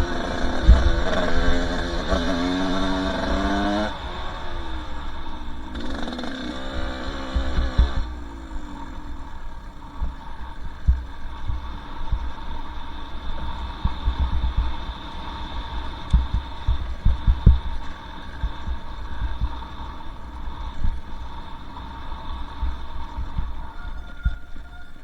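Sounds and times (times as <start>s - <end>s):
trail bump thumps: 0.0s - 8.4s, 10.0s - 20.0s
dirt bike engine: 0.0s - 25.0s
wind buffeting microphone: 0.0s - 25.0s.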